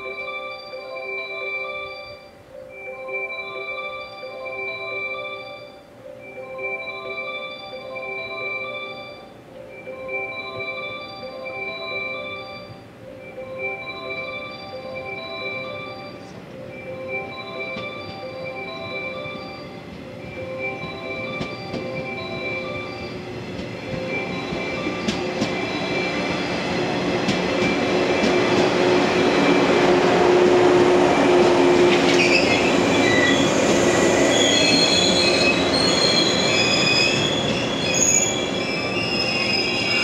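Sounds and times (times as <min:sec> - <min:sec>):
train rolling rumble: 0:09.4 - 0:40.0
wheels and brakes squealing: 0:31.8 - 0:40.0.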